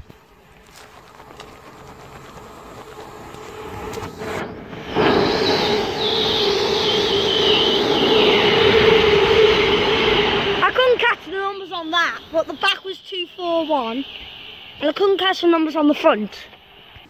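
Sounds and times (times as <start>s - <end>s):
train passing with rail noise: 0.0s - 17.0s
rush of wheel and motor noise: 0.2s - 12.7s.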